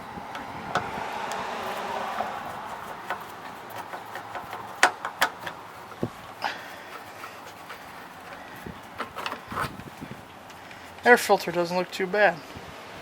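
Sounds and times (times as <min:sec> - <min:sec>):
wind noise on microphone: 0:00.0 - 0:03.8, 0:05.9 - 0:06.4, 0:07.2 - 0:10.3, 0:12.5 - 0:13.0
screwdriver and parts clicking: 0:00.3 - 0:06.1, 0:06.9 - 0:09.9.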